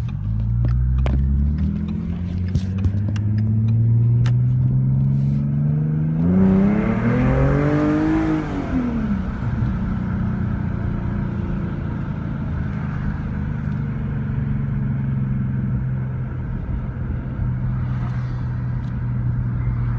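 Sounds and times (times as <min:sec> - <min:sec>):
car exhaust drone: 0:00.0 - 0:19.9.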